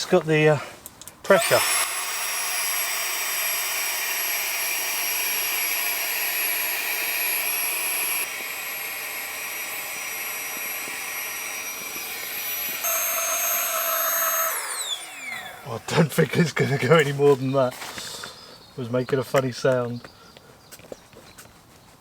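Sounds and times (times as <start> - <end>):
air pump whining: 1.2 - 16.2.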